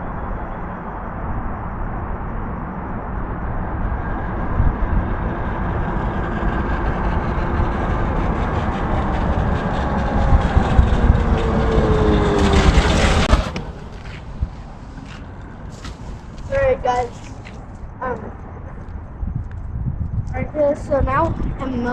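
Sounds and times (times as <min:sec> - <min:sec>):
electric dirt bike riding: 0:03.6 - 0:17.6
electric motor whine: 0:04.2 - 0:14.7
harsh scraping rush: 0:05.0 - 0:17.9.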